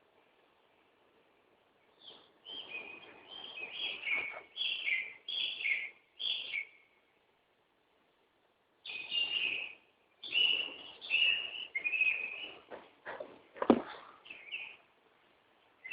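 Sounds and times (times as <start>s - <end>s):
songbird whistling notes: 2.0s - 6.9s, 8.8s - 12.7s, 14.2s - 14.9s.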